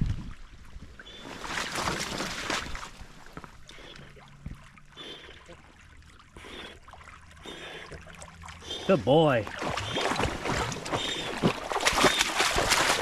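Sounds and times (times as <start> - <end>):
dog splashing through water: 1.2 - 3.2, 6.4 - 13.0.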